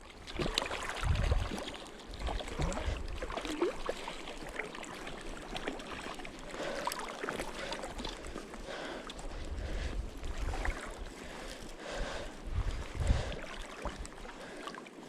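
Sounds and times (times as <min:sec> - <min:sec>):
wind rumble on microphone: 0:00.0 - 0:03.6, 0:09.2 - 0:14.2
river water running: 0:00.0 - 0:15.0.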